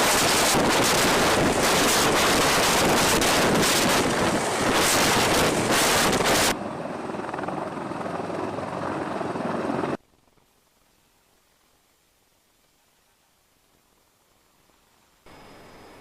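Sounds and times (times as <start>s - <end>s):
wind buffeting microphone: 0.0s - 6.6s
helicopter: 0.0s - 10.4s.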